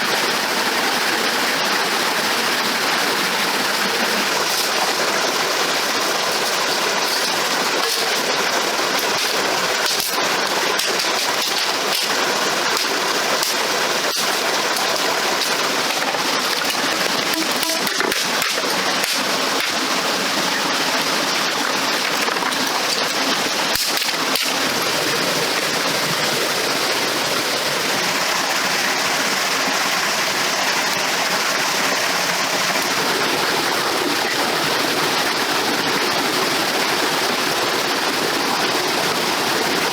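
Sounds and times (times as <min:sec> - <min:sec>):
rushing water: 0:00.0 - 0:39.9
small water splashes: 0:02.2 - 0:28.8.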